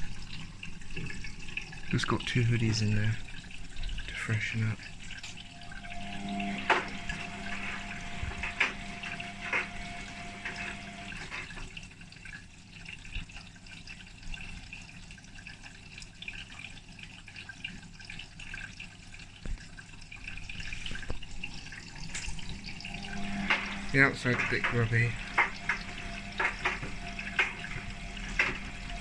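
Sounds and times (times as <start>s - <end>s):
water rushing into washing machine: 0.0s - 29.0s
steady hum: 5.2s - 11.5s, 21.2s - 29.0s.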